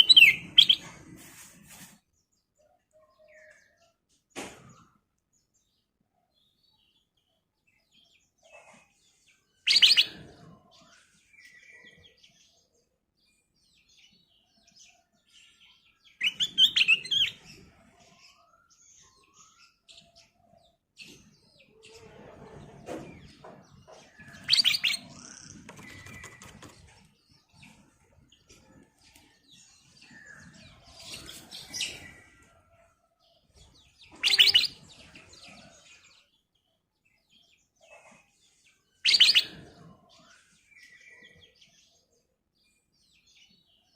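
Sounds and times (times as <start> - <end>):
bird singing bright phrases: 0.0 - 43.9
faint bird chirps: 24.2 - 36.2, 37.9 - 42.4.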